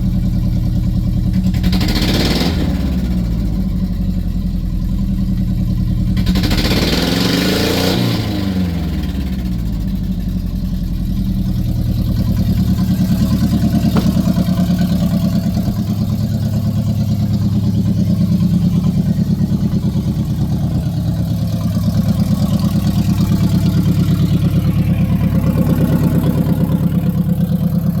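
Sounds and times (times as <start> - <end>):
car engine idling: 0.0 - 6.9, 8.5 - 28.0
car engine revving: 11.9 - 28.0.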